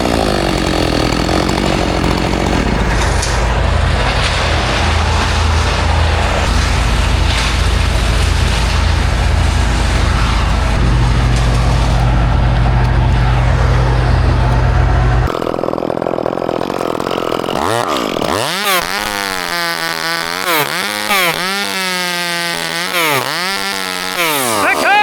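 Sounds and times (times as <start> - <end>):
large engine rumbling: 0.0 - 18.4
chainsaw revving: 0.0 - 25.0.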